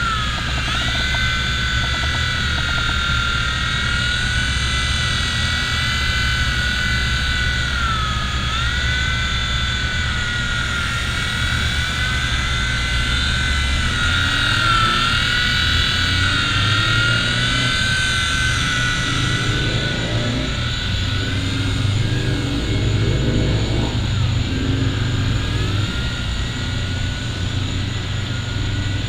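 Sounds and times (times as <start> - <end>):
toy helicopter motor whining: 0.0 - 29.0
low rumble: 19.3 - 28.5.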